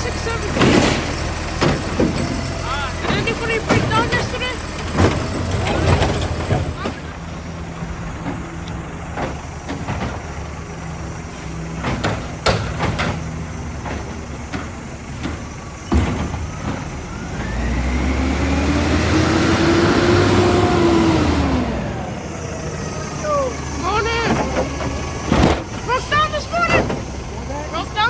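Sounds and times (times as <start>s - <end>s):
garbage truck engine revving: 0.0s - 28.0s
knocks and clatter: 0.2s - 17.1s, 23.8s - 27.9s.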